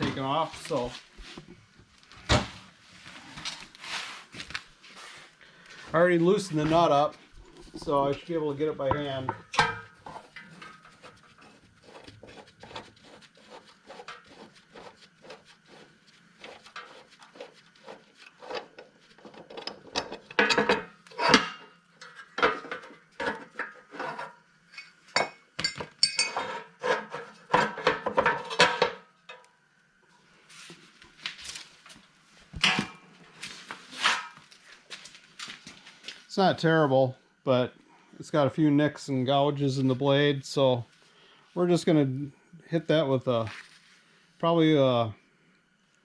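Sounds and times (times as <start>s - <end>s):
metal clinks and rattles: 24.7s - 26.5s.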